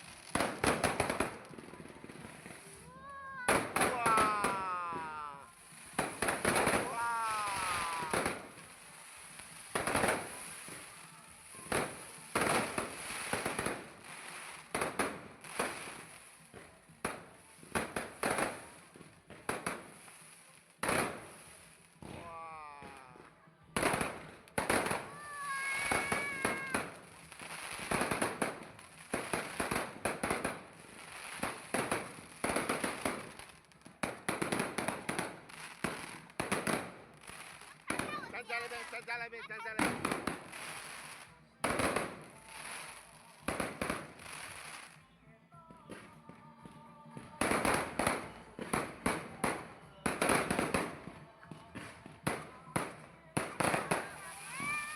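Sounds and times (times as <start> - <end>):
fireworks banging: 0.0 - 16.0, 23.8 - 45.0.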